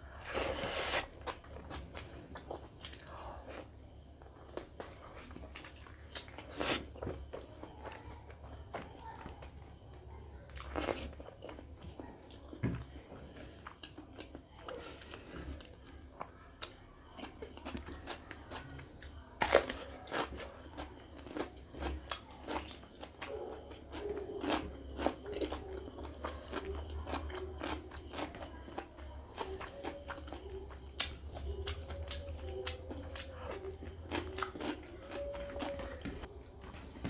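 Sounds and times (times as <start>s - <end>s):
person chewing with mouth smacks: 0.1s - 9.5s, 13.3s - 36.3s.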